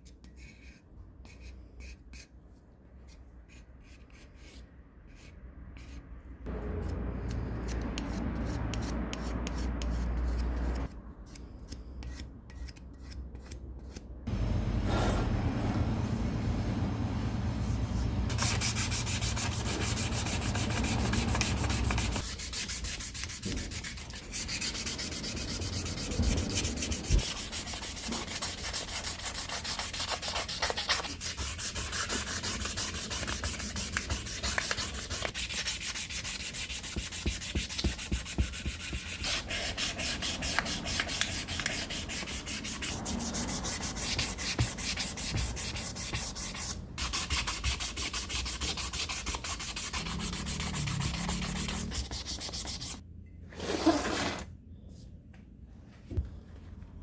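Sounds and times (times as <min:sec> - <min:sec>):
low steady hum: 0:14.3 - 0:22.2
sanding by hand: 0:18.0 - 0:53.0.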